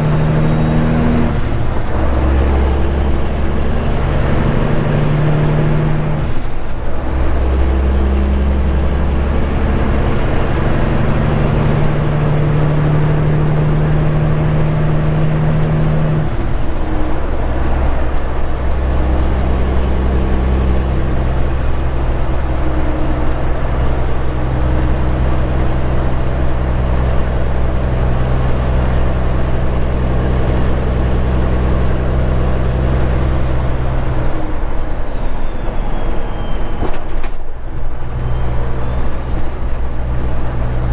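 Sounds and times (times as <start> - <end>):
diesel truck exhaust drone: 0.0 - 40.9
turbo whistle: 30.0 - 37.2.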